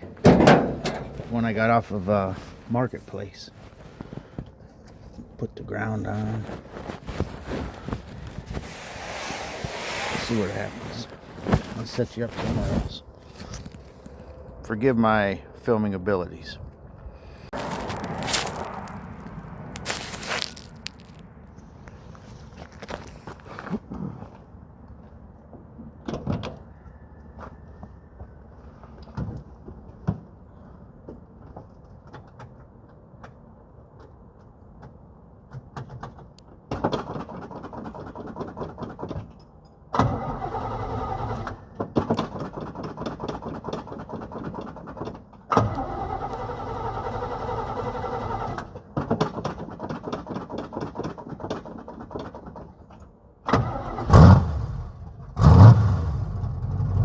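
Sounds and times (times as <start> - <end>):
car engine cranking on starter: 0.2 - 1.6, 40.0 - 41.6, 45.5 - 48.8, 53.5 - 57.0.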